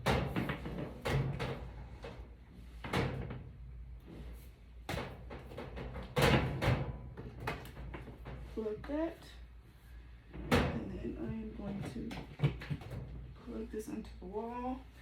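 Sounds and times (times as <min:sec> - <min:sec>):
objects knocking and clunking: 0:00.0 - 0:08.6, 0:10.3 - 0:13.4.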